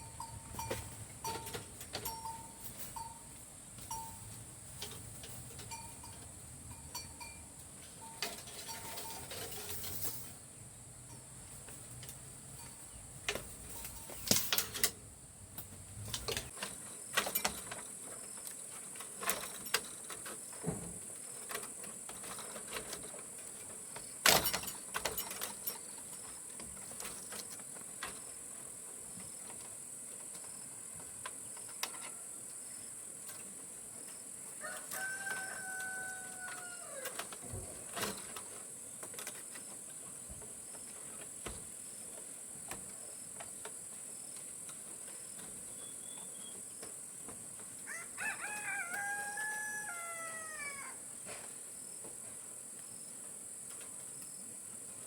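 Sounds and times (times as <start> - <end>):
rooster crowing: 34.6 - 37.2, 47.8 - 51.0.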